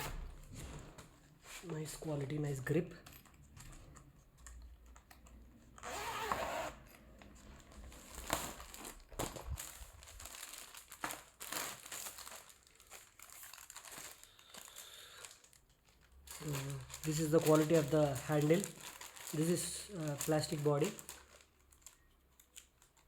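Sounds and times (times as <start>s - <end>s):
plastic packaging crinkling: 7.1s - 23.0s.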